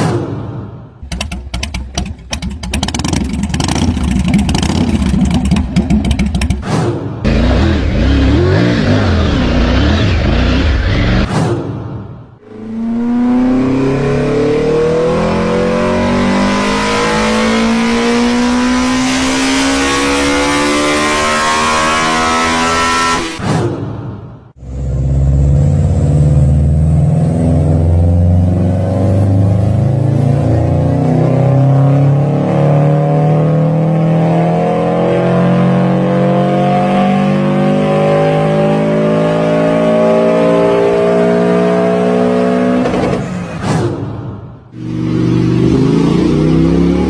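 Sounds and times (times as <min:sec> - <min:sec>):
car engine accelerating: 0:01.1 - 0:11.3, 0:12.4 - 0:23.4, 0:44.8 - 0:47.0.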